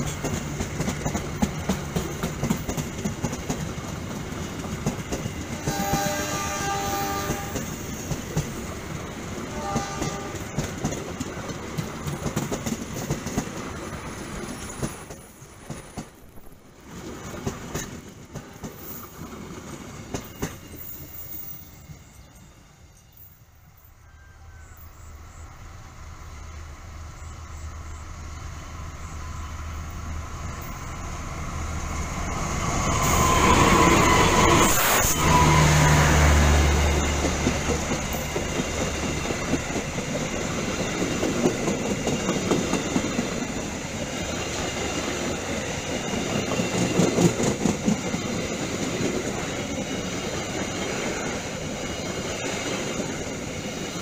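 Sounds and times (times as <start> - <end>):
train wheels clattering on rails: 0.0 - 22.5, 29.8 - 54.0.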